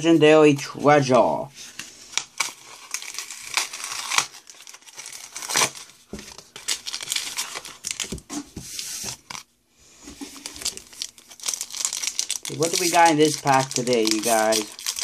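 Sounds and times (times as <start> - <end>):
foil pack tearing and crinkling: 2.2 - 5.9, 6.5 - 8.1, 10.4 - 15.0.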